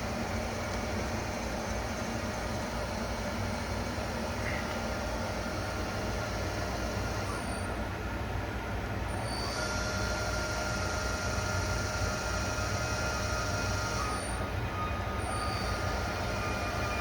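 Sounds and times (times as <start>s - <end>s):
high machine whine: 9.1s - 17.0s.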